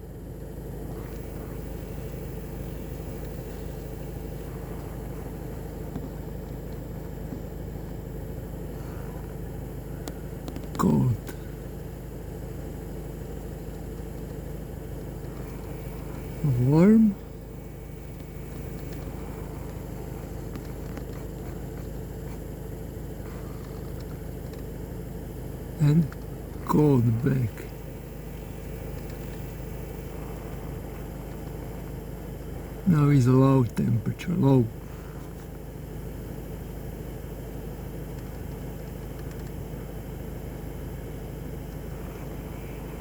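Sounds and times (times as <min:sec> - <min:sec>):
car engine idling: 0:00.0 - 0:43.0
heater blower running: 0:00.0 - 0:43.0
faint clicks: 0:10.0 - 0:11.5, 0:17.2 - 0:22.5, 0:23.2 - 0:24.7, 0:27.6 - 0:32.0, 0:38.1 - 0:39.9.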